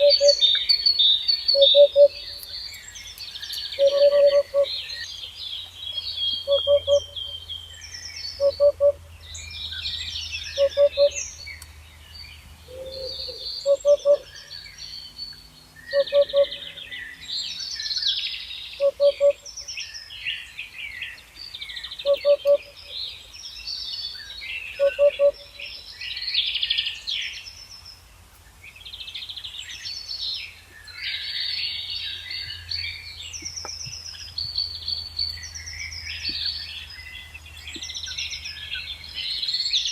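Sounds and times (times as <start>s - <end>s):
songbirds chirping and trilling: 0.0s - 39.9s
three-note hooting bird call: 3.8s - 4.9s, 6.4s - 7.2s, 8.4s - 9.0s, 10.6s - 11.2s, 12.7s - 14.4s, 15.9s - 16.8s, 24.8s - 25.5s.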